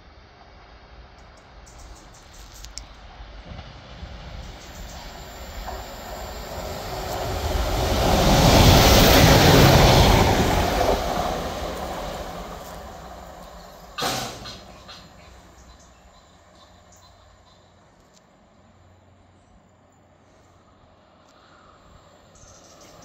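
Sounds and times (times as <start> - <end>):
train passing at speed: 0.0 - 23.0
short sharp bump: 14.0 - 15.2.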